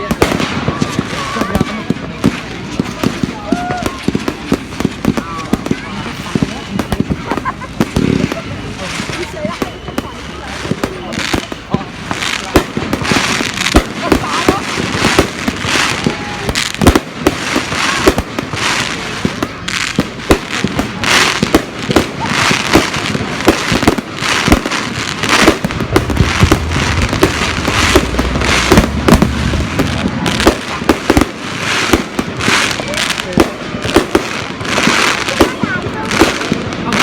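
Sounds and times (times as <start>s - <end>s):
fireworks banging: 0.0s - 37.0s
fireworks crackling: 0.0s - 37.0s
low rumble: 25.1s - 31.4s.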